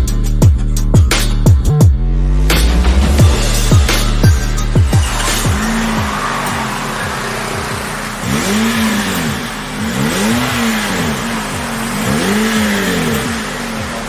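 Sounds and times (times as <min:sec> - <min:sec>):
car engine revving: 0:02.1 - 0:14.0
car engine idling: 0:02.8 - 0:14.0.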